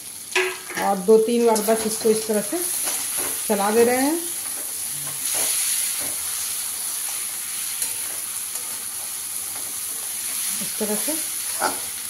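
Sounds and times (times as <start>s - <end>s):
food sizzling in oil: 0.0s - 12.0s
metal spatula scraping: 7.1s - 10.5s.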